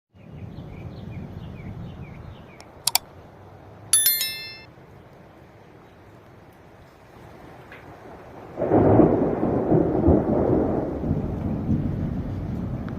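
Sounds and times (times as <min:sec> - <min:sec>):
sharp double click: 0:02.6 - 0:03.0
bell-like ding: 0:04.0 - 0:04.7.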